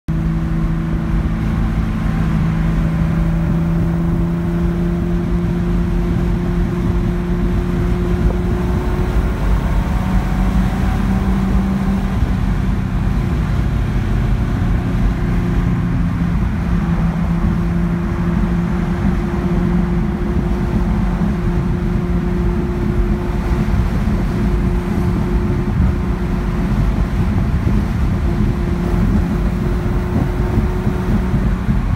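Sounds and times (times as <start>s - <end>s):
car engine running with misfire: 13.0s - 31.9s.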